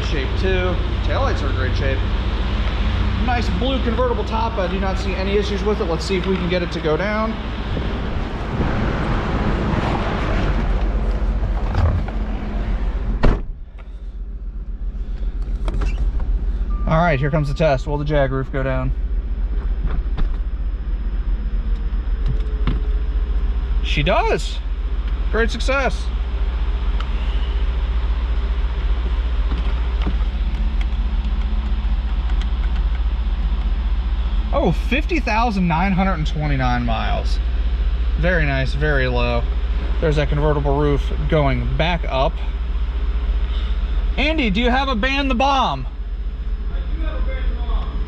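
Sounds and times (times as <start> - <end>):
wind rumble: 0.0 - 16.8
car engine idling: 0.0 - 48.0
car door shutting: 10.5 - 14.0, 19.6 - 20.5.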